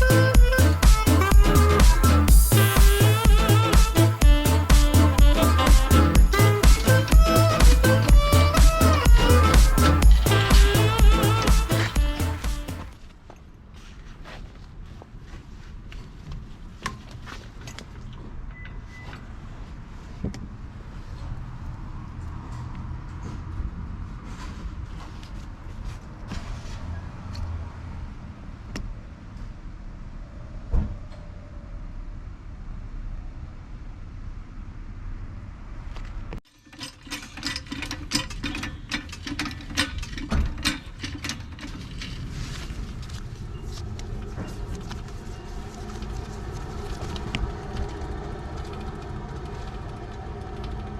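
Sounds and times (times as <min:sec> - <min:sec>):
car engine running: 0:00.0 - 0:12.9, 0:42.6 - 0:50.9
steady low rumble: 0:00.0 - 0:12.9, 0:40.0 - 0:50.9
hand tools clicking and clanking: 0:00.0 - 0:13.0, 0:36.5 - 0:43.2.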